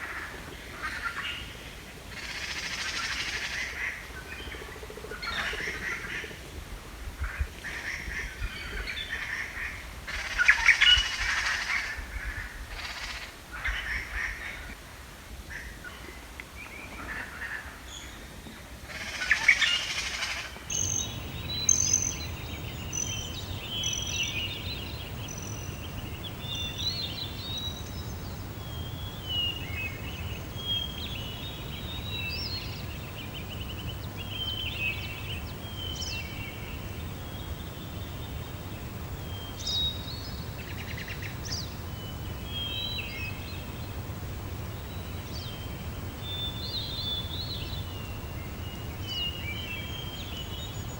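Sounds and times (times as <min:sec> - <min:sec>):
songbirds chirping: 0:20.6 - 0:50.9.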